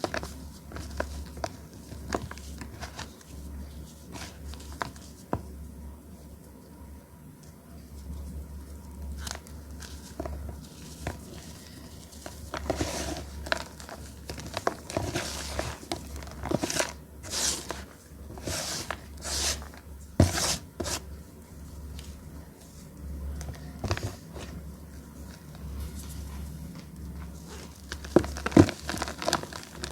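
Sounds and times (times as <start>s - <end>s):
low steady hum: 0.0s - 29.9s
chalk crushed by hand: 16.5s - 21.0s.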